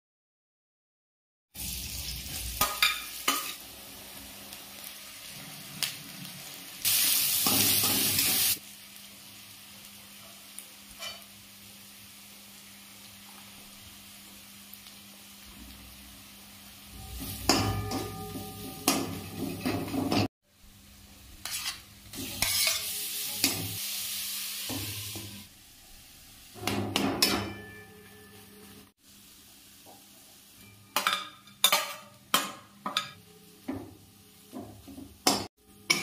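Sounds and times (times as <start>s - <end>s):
onions sizzling in oil: 1.6s - 36.0s
metal spatula scraping a pan: 10.3s - 11.3s, 16.9s - 20.3s, 21.4s - 23.8s.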